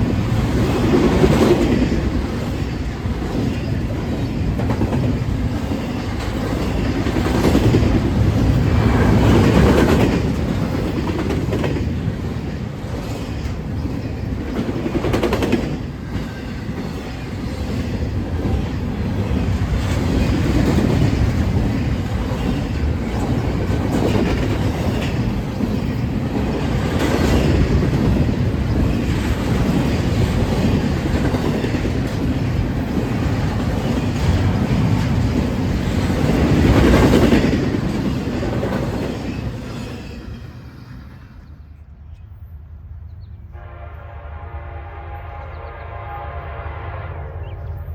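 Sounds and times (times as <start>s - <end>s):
train rumbling and clattering: 0.0s - 43.8s.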